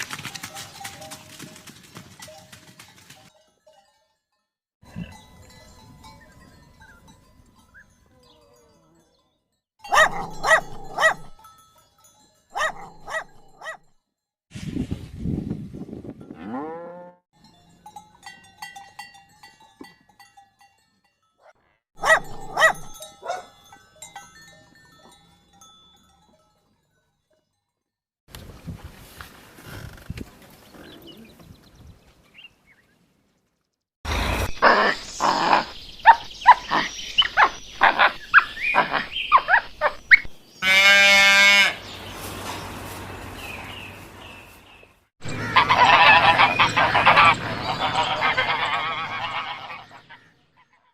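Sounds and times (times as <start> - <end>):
farm animal calls: 9.8 - 11.5, 12.6 - 13.8, 22.0 - 23.5, 34.5 - 42.0, 45.2 - 50.9.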